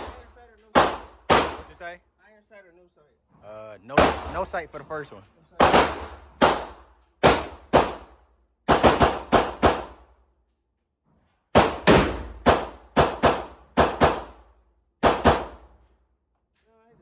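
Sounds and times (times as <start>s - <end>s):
rapid gunshots: 0.0s - 1.8s, 4.0s - 4.6s, 5.6s - 10.0s, 11.6s - 14.4s, 15.0s - 15.6s.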